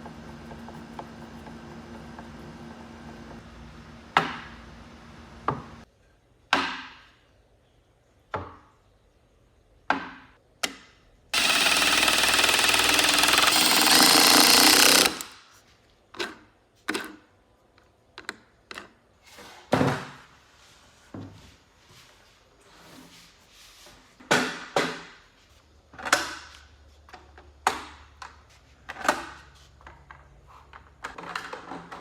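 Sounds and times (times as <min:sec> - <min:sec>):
loud power tool running: 0:11.4 - 0:15.4.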